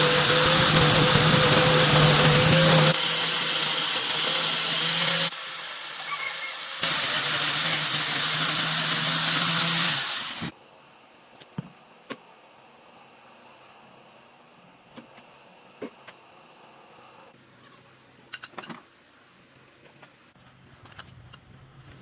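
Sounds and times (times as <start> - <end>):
electric power tool running: 0.0 - 10.5.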